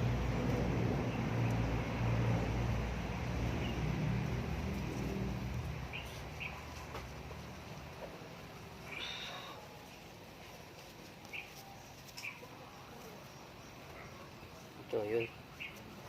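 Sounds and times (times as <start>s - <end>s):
low engine hum: 0.0s - 9.8s
faint bird chirps: 8.8s - 9.8s.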